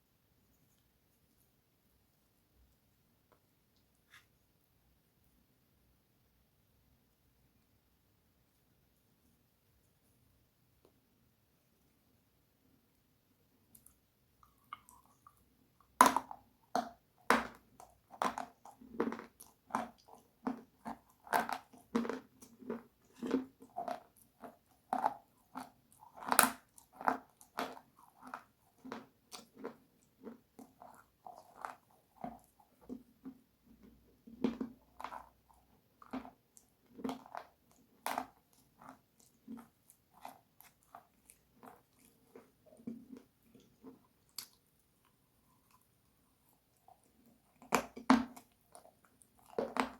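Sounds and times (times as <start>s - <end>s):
crunchy eating: 18.1s - 33.0s, 34.4s - 49.9s.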